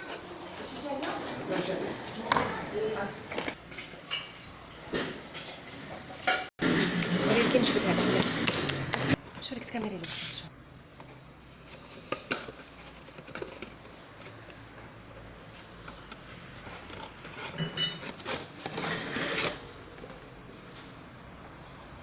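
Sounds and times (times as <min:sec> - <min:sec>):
utensils and dishes clinking: 0:00.0 - 0:09.2, 0:16.9 - 0:19.6.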